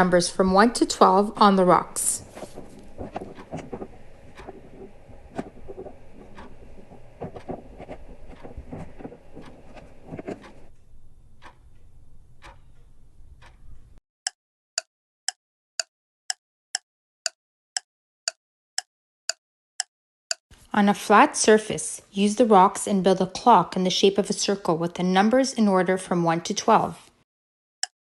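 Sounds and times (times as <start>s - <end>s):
clock ticking: 0.0s - 11.6s, 12.3s - 13.6s, 14.2s - 19.4s.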